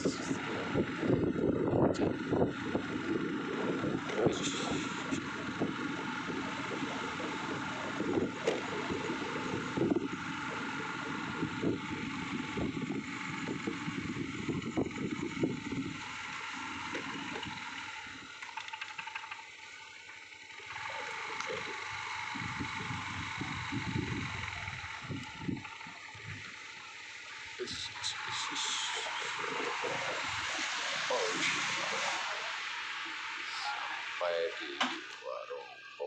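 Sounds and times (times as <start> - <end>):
wind buffeting microphone: 0.0 - 16.2, 22.2 - 26.5
scooter engine and tyre noise: 0.0 - 36.0.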